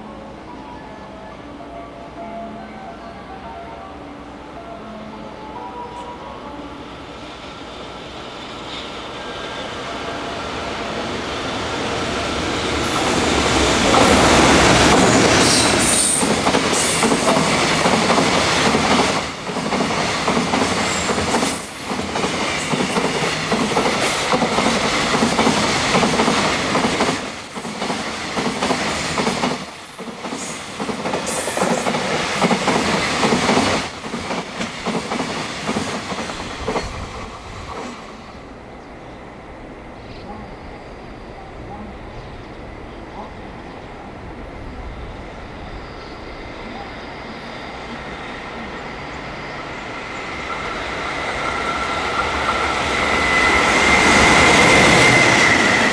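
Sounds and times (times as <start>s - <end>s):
electric locomotive passing: 0.0s - 55.9s
train wheels rumbling and clattering: 10.8s - 38.6s.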